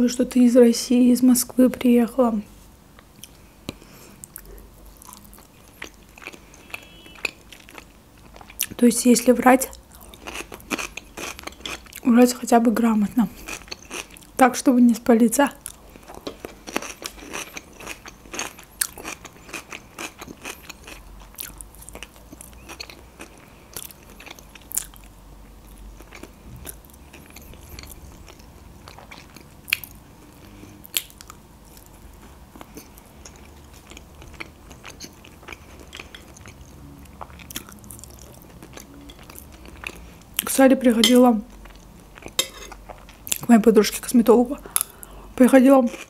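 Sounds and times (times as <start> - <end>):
person chewing with mouth clicks: 3.0 - 8.8, 9.7 - 12.1, 13.3 - 14.4, 15.6 - 40.5, 41.5 - 43.5, 44.7 - 45.1.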